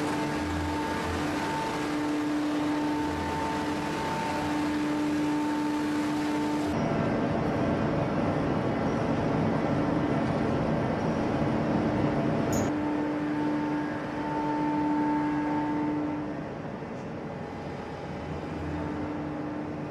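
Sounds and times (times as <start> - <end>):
rough mechanical noise: 0.0 - 6.8
machinery droning hum: 0.0 - 19.9.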